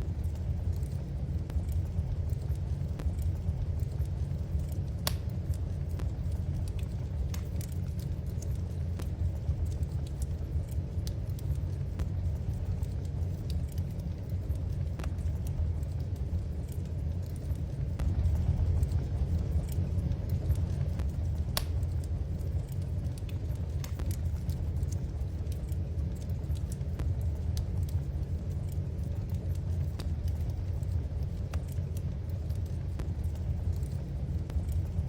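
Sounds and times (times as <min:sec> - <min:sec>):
low rumble of fire: 0:00.0 - 0:35.0
wood fire crackling and popping: 0:00.0 - 0:35.0.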